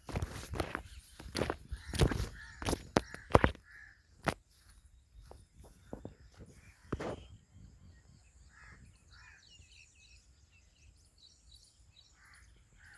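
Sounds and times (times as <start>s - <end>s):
birds calling: 0.0s - 12.9s
sharp clicks: 1.2s - 3.6s.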